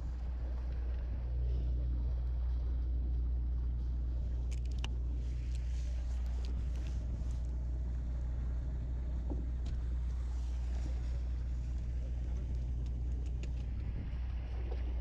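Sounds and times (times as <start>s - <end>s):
boat engines droning: 0.0s - 15.0s
faint clicks: 4.4s - 7.4s, 11.7s - 13.9s.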